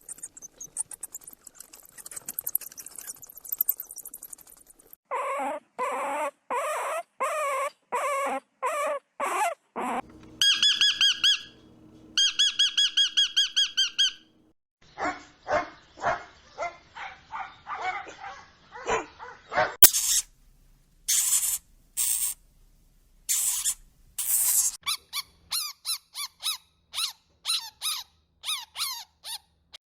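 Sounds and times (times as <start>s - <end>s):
short yelping calls: 5.1s - 11.6s, 19.8s - 20.4s, 21.1s - 22.4s, 23.3s - 29.4s
high-pitched warbling chirps: 19.8s - 20.3s
high hissy screeches: 19.8s - 20.4s, 21.1s - 22.4s, 23.3s - 24.8s.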